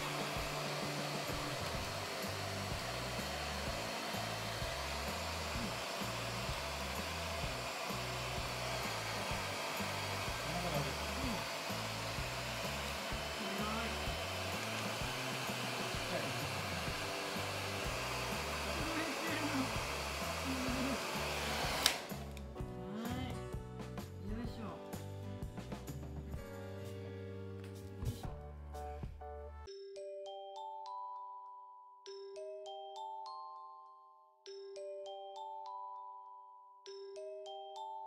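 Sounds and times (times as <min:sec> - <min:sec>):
pet hair dryer blowing: 0:00.0 - 0:22.5.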